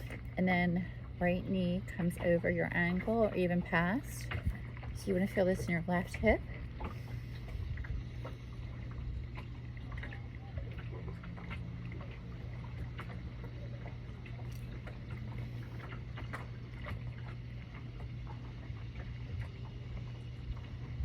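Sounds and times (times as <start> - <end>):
boat mechanical hum: 0.0 - 21.0.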